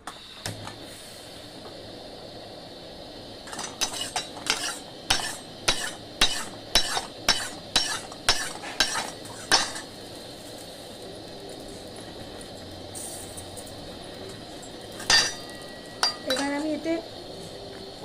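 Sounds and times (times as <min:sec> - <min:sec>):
frying sizzle: 0:00.0 - 0:18.0
metal spoon scraping pan: 0:03.6 - 0:09.8.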